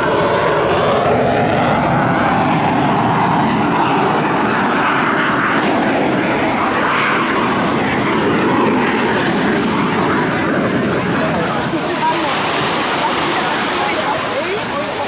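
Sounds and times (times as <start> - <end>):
jet engines in flight: 0.0 - 15.0.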